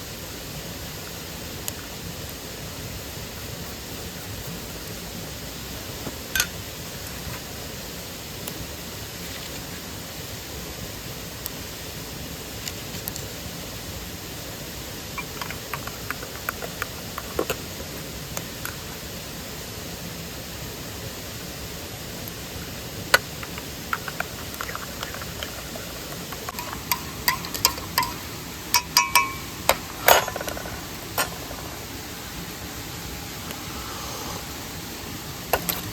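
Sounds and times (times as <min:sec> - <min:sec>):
stream and waterfall rushing: 0:00.0 - 0:35.9
ringing metallic clinks: 0:28.8 - 0:29.5.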